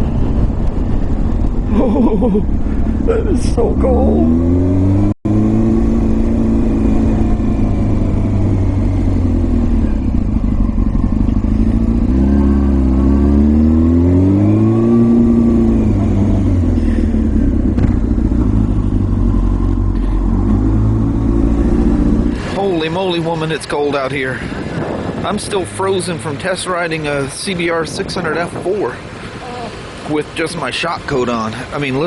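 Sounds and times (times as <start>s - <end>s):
wind rushing on microphone: 0.0s - 4.7s, 20.8s - 29.2s
motorcycle engine running: 0.0s - 23.7s.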